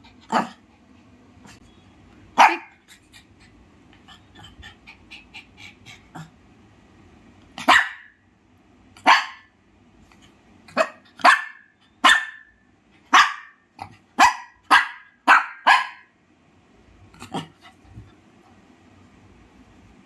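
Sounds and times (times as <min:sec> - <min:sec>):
dog barking sharply: 0:02.4 - 0:02.8, 0:07.6 - 0:08.2, 0:09.0 - 0:09.5, 0:10.7 - 0:12.5, 0:13.1 - 0:13.6, 0:14.2 - 0:16.1.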